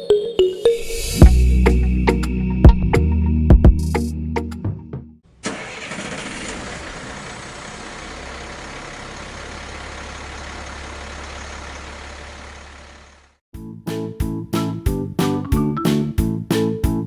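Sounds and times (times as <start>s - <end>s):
engine running: 5.4s - 13.4s
background music: 13.6s - 17.0s.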